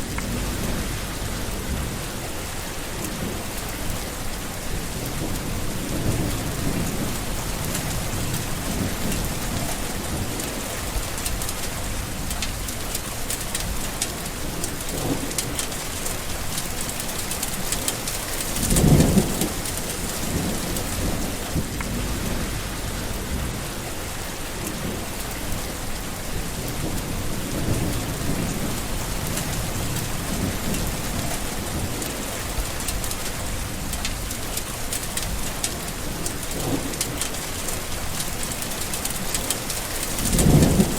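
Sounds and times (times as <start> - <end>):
loud thunderclap: 0.0 - 2.2, 18.5 - 23.9, 24.8 - 34.3, 39.9 - 40.9
thunder rolling: 0.0 - 2.4, 17.8 - 34.4, 39.8 - 40.9
heavy rain: 0.0 - 40.9.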